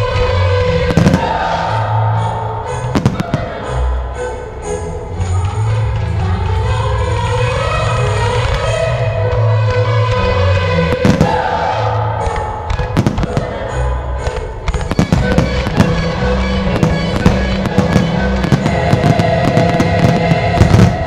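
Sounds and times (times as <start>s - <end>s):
loud music: 0.0s - 21.0s
fireworks bangs and crackles: 0.7s - 1.7s, 2.9s - 3.7s, 10.6s - 11.6s, 12.2s - 21.0s.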